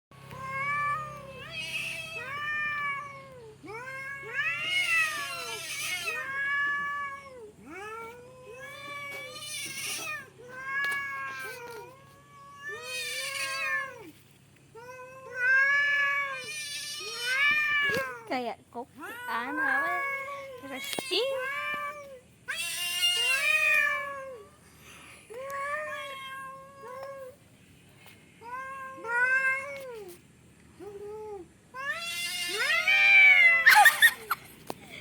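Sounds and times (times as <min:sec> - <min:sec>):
cats yowling: 0:00.3 - 0:14.2, 0:14.8 - 0:18.3, 0:19.0 - 0:24.5, 0:30.9 - 0:34.5.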